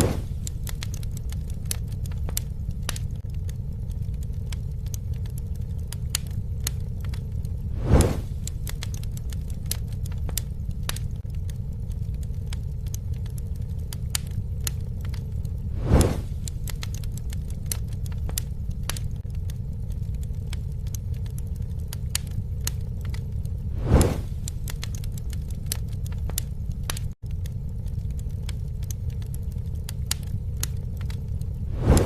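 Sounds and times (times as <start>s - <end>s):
campfire flames rumbling: 0.0s - 32.0s
fire crackling and popping: 0.0s - 32.0s
fire whooshing: 0.0s - 32.0s.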